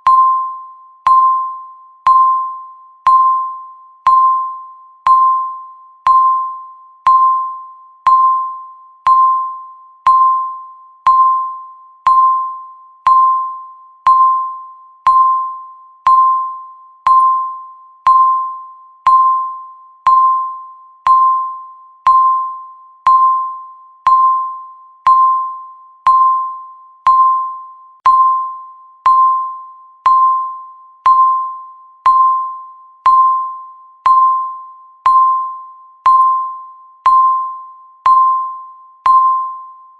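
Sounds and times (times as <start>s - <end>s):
countdown timer beeping: 0.0s - 39.8s.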